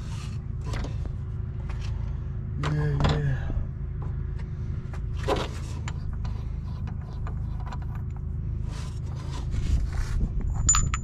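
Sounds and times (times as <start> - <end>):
steady low hum: 0.0 - 11.0
metal parts clicking and knocking: 10.5 - 11.0.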